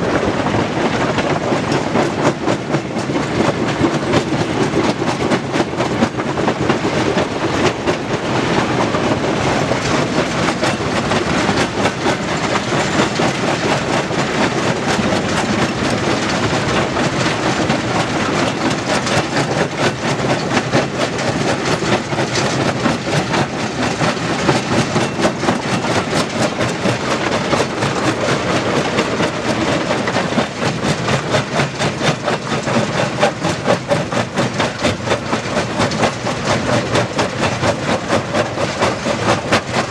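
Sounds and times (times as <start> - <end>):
stone crusher clattering: 9.7 - 39.9.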